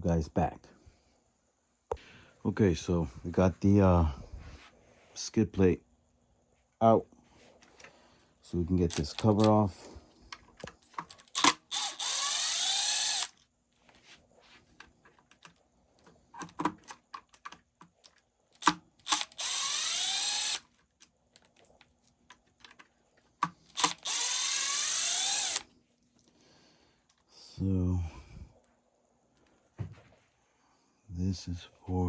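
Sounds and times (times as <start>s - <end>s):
small parts clicking and knocking: 8.8s - 14.0s, 14.8s - 26.4s
power driver motor whine: 11.4s - 13.4s, 18.6s - 20.6s, 23.7s - 25.6s.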